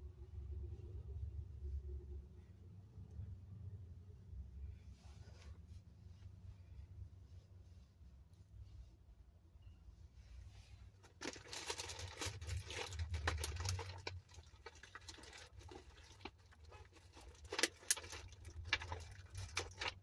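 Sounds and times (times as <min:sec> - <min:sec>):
makeup items rustling: 0:10.6 - 0:20.0.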